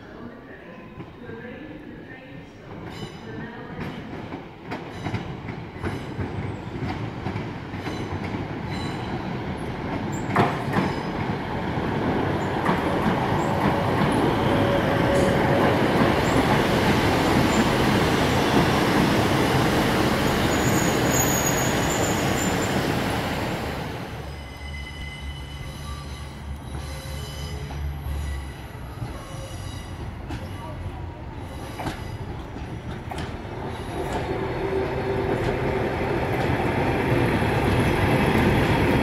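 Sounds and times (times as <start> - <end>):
train rumbling past: 0.9 - 39.0
faint high squeal: 20.4 - 22.8.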